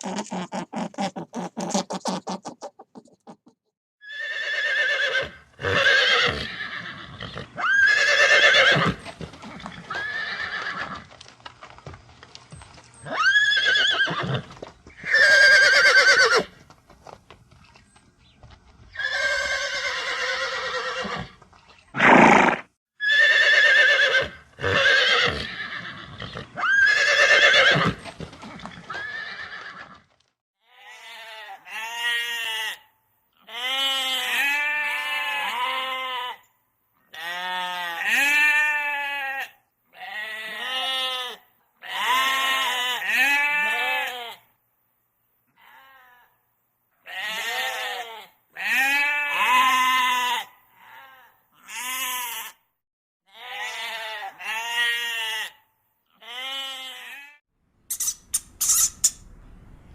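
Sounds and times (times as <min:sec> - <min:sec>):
harsh animal calls: 0:00.0 - 0:11.0, 0:57.9 - 0:59.3
quavering bleats: 0:30.6 - 0:36.4, 0:37.1 - 0:44.5, 0:45.6 - 0:46.4, 0:47.0 - 0:52.6, 0:53.3 - 0:57.4.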